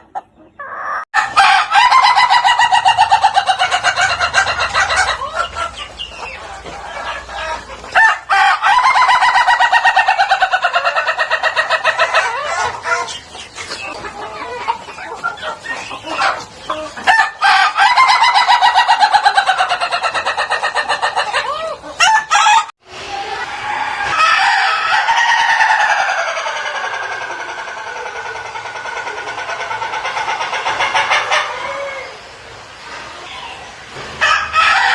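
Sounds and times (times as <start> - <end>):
rooster crowing: 1.2 - 3.3, 8.0 - 10.4, 22.0 - 22.7, 23.6 - 26.5, 34.2 - 34.9.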